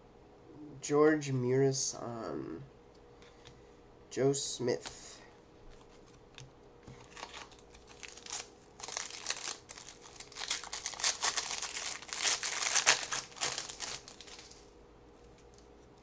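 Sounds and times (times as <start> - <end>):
plastic wrapper crackling rustle: 6.9 - 15.6.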